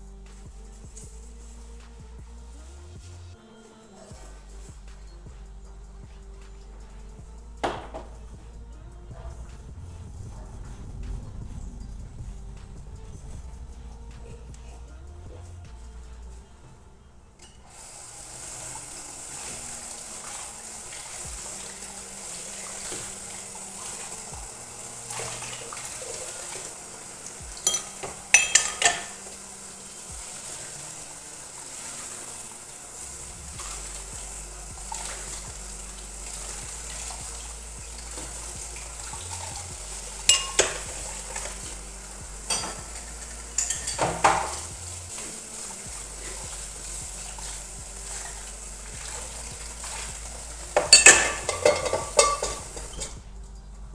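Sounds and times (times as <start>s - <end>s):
steady hiss: 0.0s - 53.9s
dishes and cutlery clattering: 7.6s - 8.4s, 18.6s - 32.6s, 36.3s - 47.0s, 48.1s - 53.2s.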